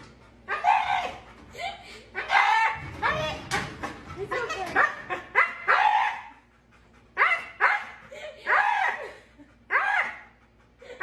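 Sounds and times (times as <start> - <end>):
dog barking and yipping: 0.5 - 1.2, 4.3 - 6.4, 7.2 - 9.1, 9.7 - 10.3.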